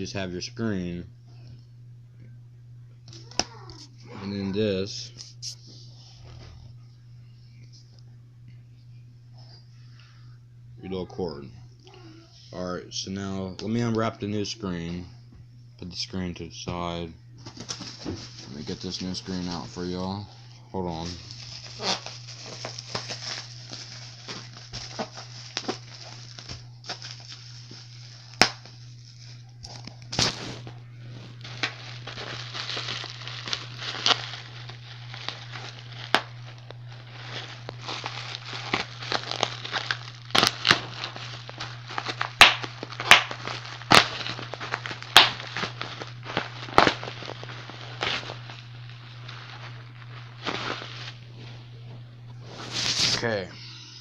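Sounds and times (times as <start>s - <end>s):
steady low hum: 0.0s - 54.0s
packaging crinkling and tearing: 17.4s - 19.6s, 21.0s - 51.2s.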